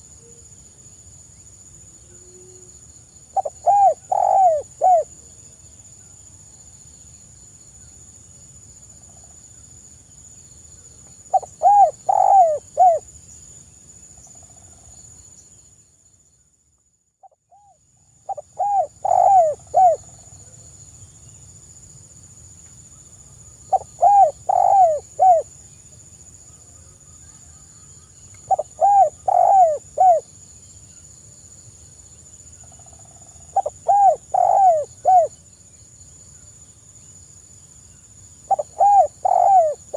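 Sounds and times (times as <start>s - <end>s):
faint high-pitched hiss: 0.0s - 39.9s
dove cooing: 3.4s - 5.1s, 11.3s - 13.0s, 18.3s - 20.1s, 23.7s - 25.5s, 28.5s - 30.2s, 33.5s - 35.3s, 38.5s - 39.9s.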